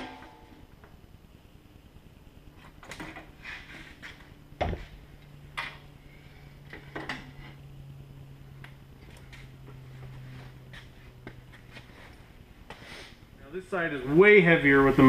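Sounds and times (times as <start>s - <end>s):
metal clanks and knocks: 0.0s - 0.5s
faint low hum: 0.0s - 15.0s.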